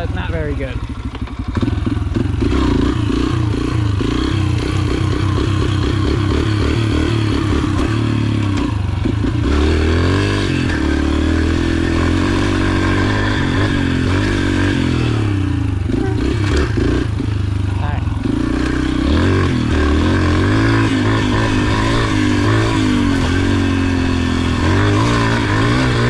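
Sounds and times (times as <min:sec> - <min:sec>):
pit bike engine revving: 0:00.0 - 0:26.0.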